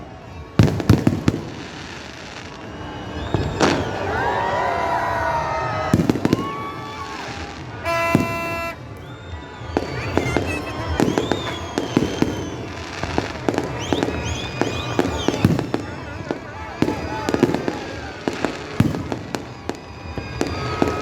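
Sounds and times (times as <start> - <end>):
fireworks bangs and crackles: 0.0 - 4.5, 5.2 - 21.0
fireworks whistling: 0.6 - 4.2, 5.9 - 21.0
steady horn-like tone: 7.8 - 8.8.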